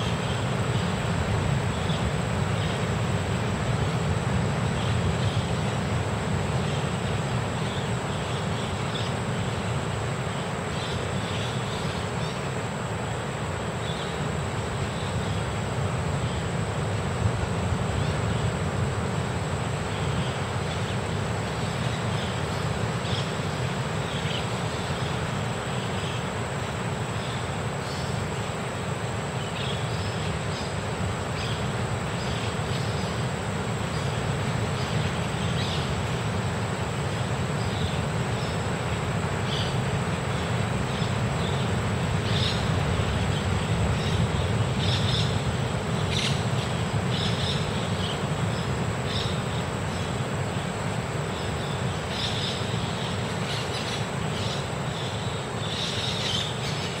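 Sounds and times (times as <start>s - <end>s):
low rumble and hiss: 0.0s - 57.0s
small birds chirping: 27.2s - 57.0s.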